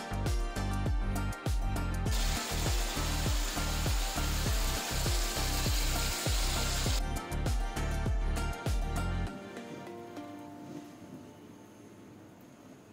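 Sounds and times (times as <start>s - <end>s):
background music with steady beat: 0.0s - 12.6s
curry sizzling in a pan: 2.1s - 7.0s.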